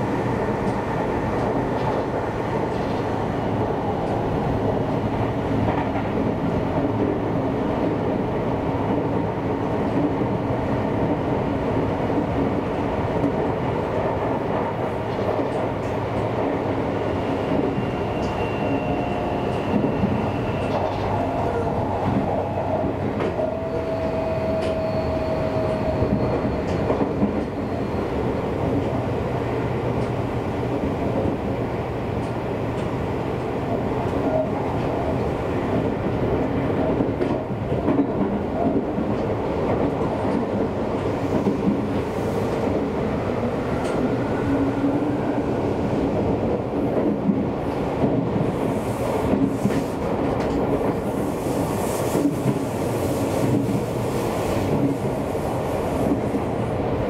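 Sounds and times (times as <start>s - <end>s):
rail joint clicks: 0.0s - 8.2s, 8.8s - 57.0s
faint squealing tones: 23.4s - 26.9s.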